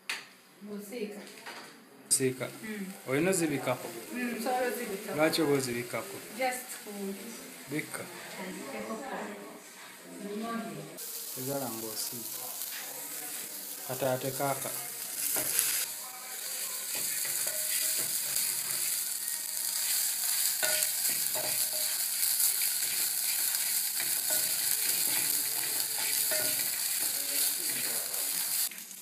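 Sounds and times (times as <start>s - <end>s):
insects sizzling in a pan: 2.3s - 8.9s, 11.0s - 29.0s
spoon stirring and scraping: 16.6s - 28.7s.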